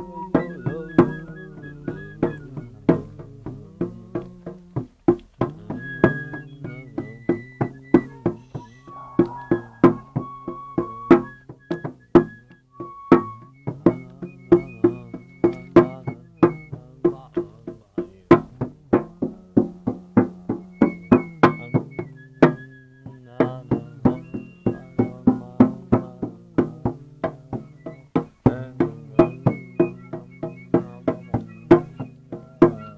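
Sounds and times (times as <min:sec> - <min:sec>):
pitched percussion notes ringing: 0:00.0 - 0:02.6, 0:05.5 - 0:16.7, 0:27.7 - 0:32.9.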